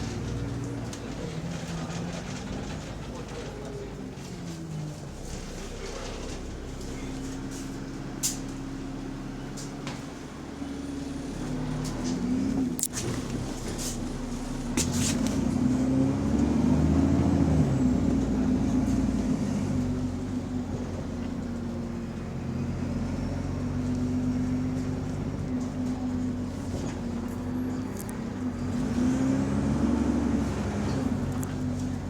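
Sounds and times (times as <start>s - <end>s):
bus engine with exhaust leak: 0.0s - 32.0s.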